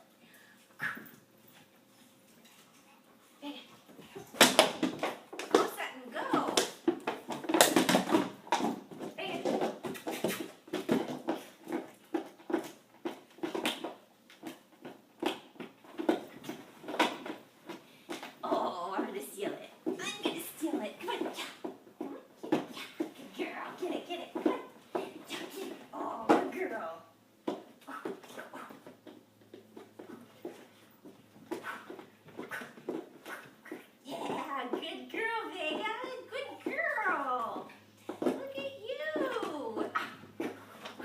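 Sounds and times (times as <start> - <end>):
dog playing with toy: 19.8 - 26.7, 27.4 - 41.0
dog making soft sounds: 27.8 - 28.9.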